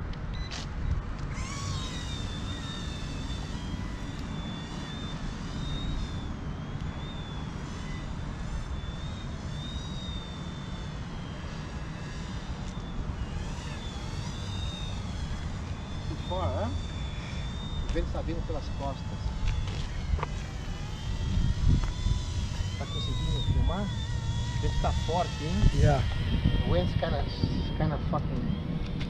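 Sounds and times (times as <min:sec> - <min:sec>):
low rumble of wind: 0:00.0 - 0:29.0
rc helicopter motor whine: 0:00.0 - 0:29.0.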